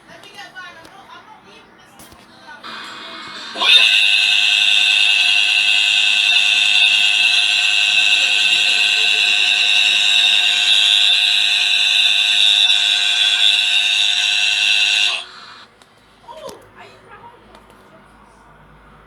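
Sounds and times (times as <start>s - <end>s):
high-pitched electronic alarm tone: 2.7s - 15.7s.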